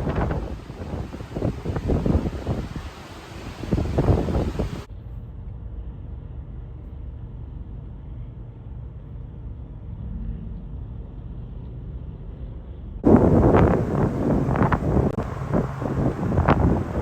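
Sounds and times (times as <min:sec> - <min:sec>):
wind gusting on microphone: 0:00.0 - 0:04.9, 0:13.0 - 0:17.0
steady low rumble: 0:00.0 - 0:17.0.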